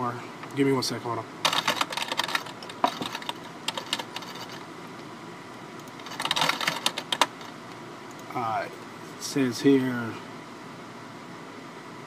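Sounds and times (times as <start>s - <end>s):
keyboard typing over phone line: 1.4s - 4.6s, 5.8s - 7.5s.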